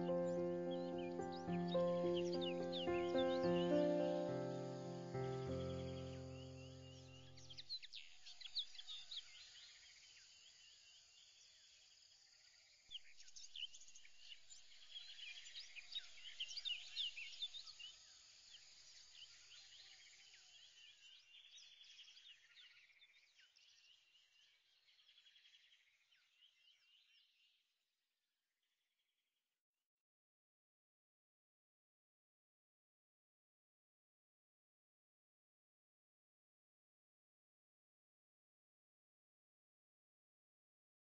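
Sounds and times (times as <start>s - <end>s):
birds chirping: 0.0s - 9.4s.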